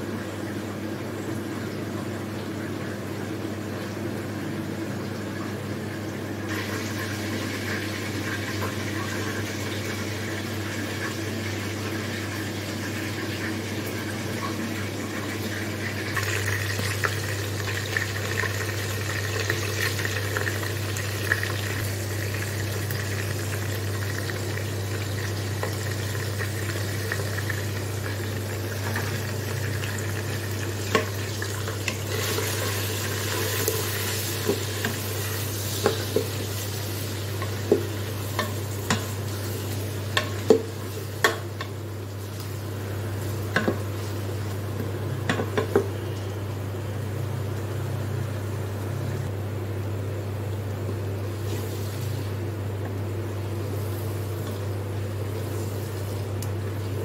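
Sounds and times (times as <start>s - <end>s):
chicken sizzling in oil: 6.5s - 44.7s.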